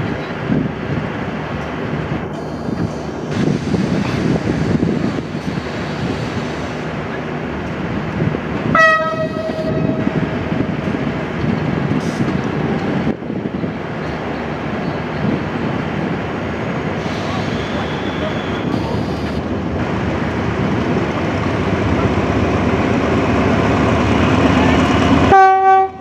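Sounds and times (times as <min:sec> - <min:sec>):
diesel locomotive engine rumble: 0:00.0 - 0:26.0
train horn blast: 0:08.7 - 0:10.3, 0:25.3 - 0:26.0.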